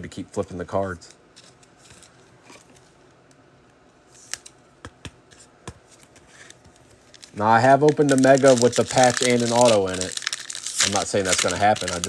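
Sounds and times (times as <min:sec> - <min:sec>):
trading cards rustling: 0:05.3 - 0:12.0.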